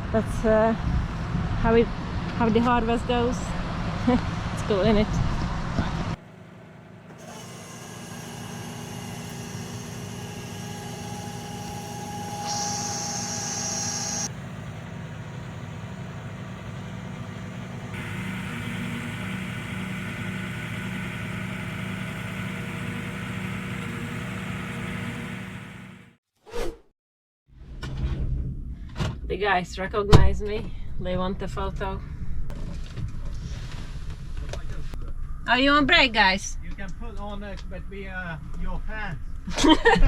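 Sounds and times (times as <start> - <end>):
high engine whine: 0.0 - 26.2
lorry diesel engine running: 13.3 - 26.2.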